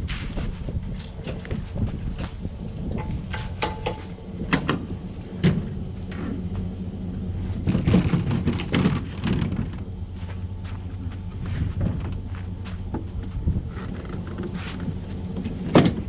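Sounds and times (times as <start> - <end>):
engine idling: 0.6 - 16.0
sharp knocks and clatter: 2.9 - 6.4, 7.6 - 9.9, 12.9 - 16.0.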